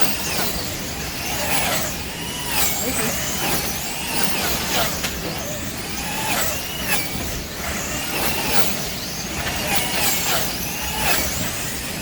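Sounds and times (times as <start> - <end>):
slot car motors whining: 0.0 - 12.0.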